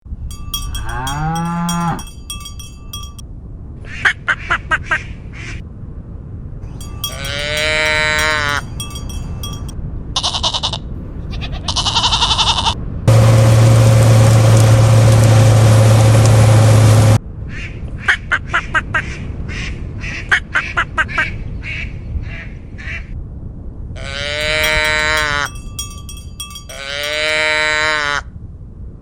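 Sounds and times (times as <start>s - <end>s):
cowbell clanking: 0.1s - 3.2s, 6.7s - 9.8s, 24.4s - 27.7s
high livestock calls: 0.3s - 3.2s, 6.8s - 10.7s, 24.1s - 28.0s
cow mooing: 0.5s - 2.2s, 24.1s - 25.6s.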